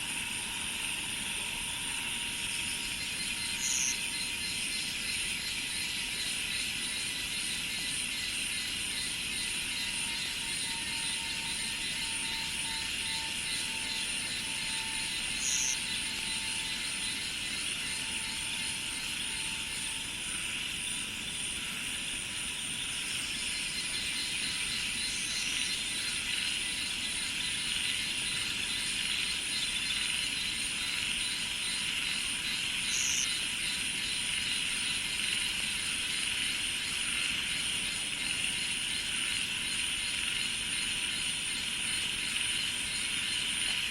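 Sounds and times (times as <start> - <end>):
insects trilling and buzzing: 0.0 - 43.9.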